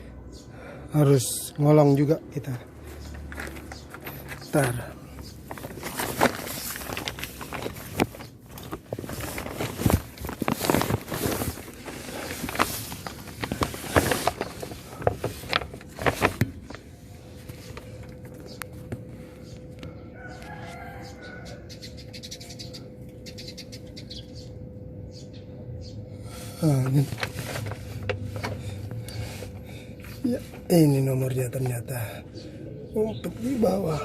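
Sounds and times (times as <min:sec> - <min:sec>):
steady hum: 0:00.0 - 0:20.2, 0:21.1 - 0:34.0
scraping and rustling under car: 0:02.8 - 0:19.1, 0:26.6 - 0:31.8
faint rooster crowing: 0:19.8 - 0:21.9.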